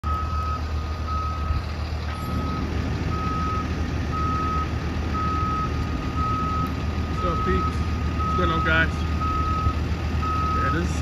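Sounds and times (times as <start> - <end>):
truck back-up alarm beeping: 0.0 - 11.0
truck engine rumbling: 0.0 - 11.0.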